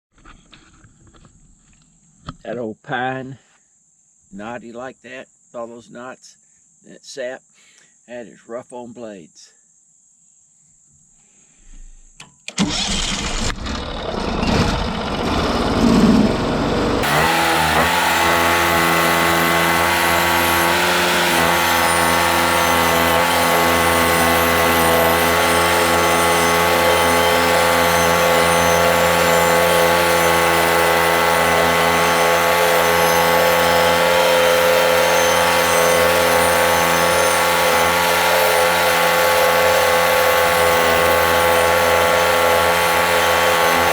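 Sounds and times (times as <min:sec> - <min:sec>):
sawmill gas engine running: 0:12.6 - 0:43.9.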